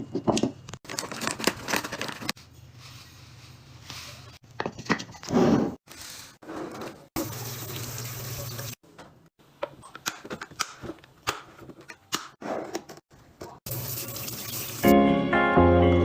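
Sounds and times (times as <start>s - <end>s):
items clicking and knocking: 0.0s - 2.4s, 4.4s - 5.4s, 8.9s - 13.6s.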